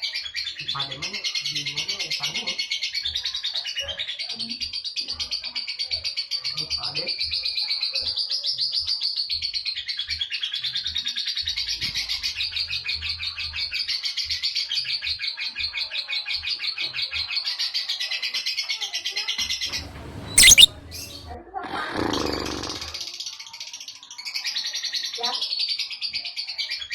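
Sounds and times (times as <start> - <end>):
lovebird chattering: 19.8 - 21.2.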